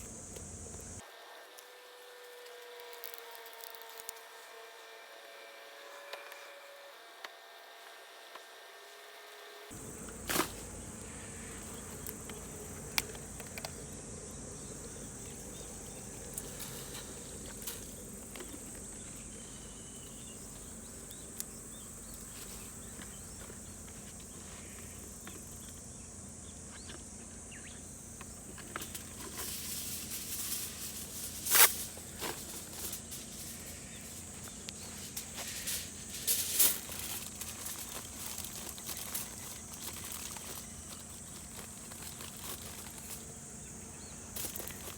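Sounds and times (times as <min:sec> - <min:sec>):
insects chirring: 0:00.0 - 0:01.3, 0:09.7 - 0:44.9
handling noises: 0:09.7 - 0:25.9, 0:27.9 - 0:44.9.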